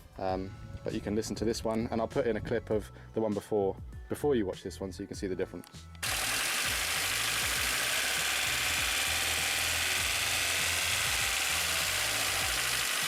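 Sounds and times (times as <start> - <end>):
car engine idling: 6.1 - 13.0.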